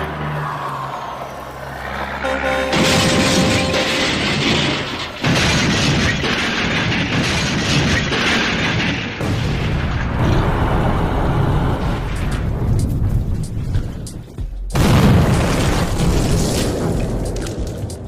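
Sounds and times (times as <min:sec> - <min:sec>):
explosion booms: 0:03.1 - 0:12.8.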